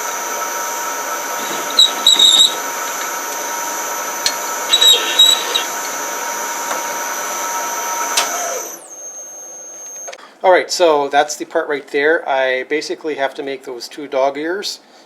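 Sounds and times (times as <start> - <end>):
metal lathe running with whine: 0.0 - 9.0
high cutting squeals: 0.9 - 6.6.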